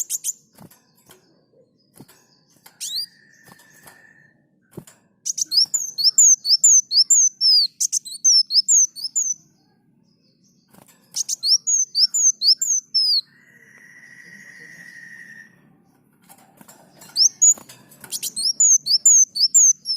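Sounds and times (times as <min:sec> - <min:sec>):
sunbird high sweeping chirps: 0:00.0 - 0:00.5, 0:05.3 - 0:09.5, 0:11.2 - 0:15.7, 0:17.1 - 0:19.9.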